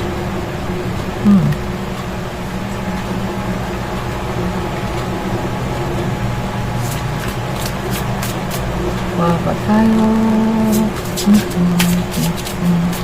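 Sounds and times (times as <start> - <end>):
low mechanical hum: 0.0 - 13.0
cards being shuffled: 6.8 - 8.7, 10.7 - 13.0.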